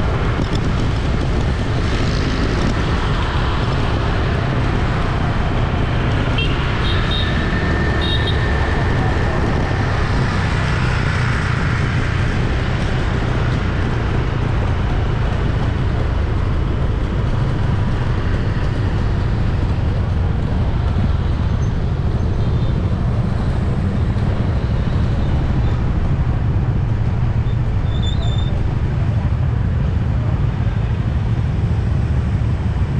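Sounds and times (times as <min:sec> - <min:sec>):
traffic rumble: 0:00.0 - 0:32.9.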